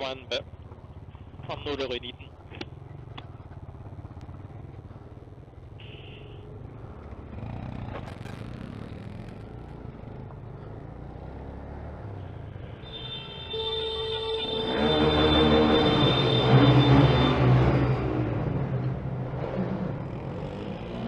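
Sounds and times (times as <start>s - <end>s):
motorcycle engines idling: 0.0s - 14.8s
motorcycle engine revving: 2.3s - 12.8s, 14.2s - 21.0s.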